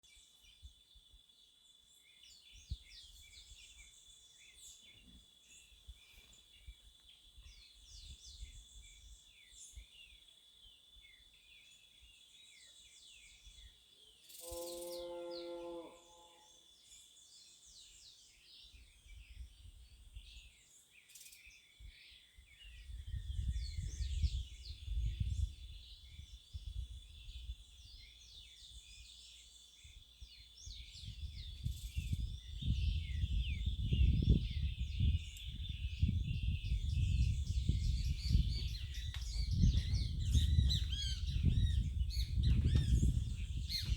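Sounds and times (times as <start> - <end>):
birds chirping and singing: 11.0 - 43.9.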